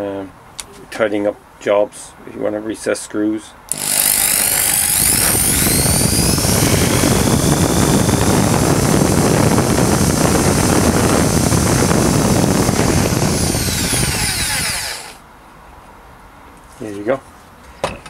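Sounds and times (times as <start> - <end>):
hammer drill motor whine: 3.7 - 15.2.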